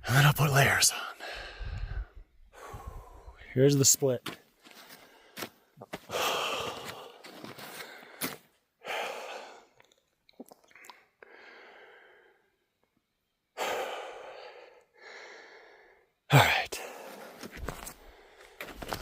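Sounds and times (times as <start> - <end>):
person breathing heavily: 0.9 - 3.5, 4.7 - 9.8, 10.8 - 12.6, 13.6 - 19.0.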